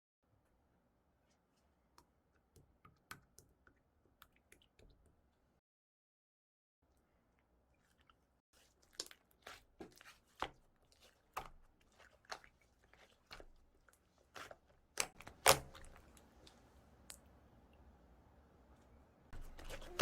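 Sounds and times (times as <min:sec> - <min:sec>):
slime squishing: 0:07.8 - 0:17.3, 0:19.4 - 0:20.0.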